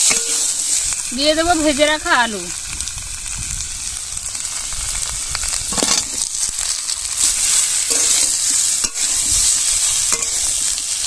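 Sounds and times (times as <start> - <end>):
metal spatula scraping a wok: 0.0 - 0.9, 5.7 - 11.0
food sizzling in oil: 0.0 - 11.0.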